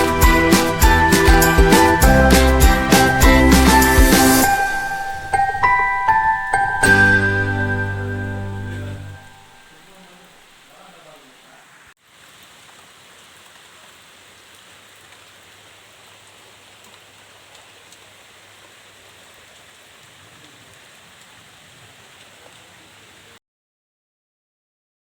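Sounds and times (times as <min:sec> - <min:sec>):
hiss of water: 0:02.9 - 0:07.7, 0:08.6 - 0:23.4.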